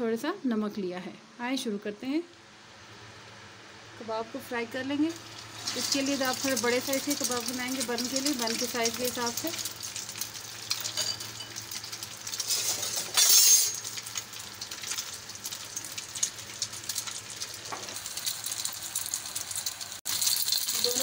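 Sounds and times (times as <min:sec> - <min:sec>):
patty frying in hot oil: 0:04.3 - 0:21.0.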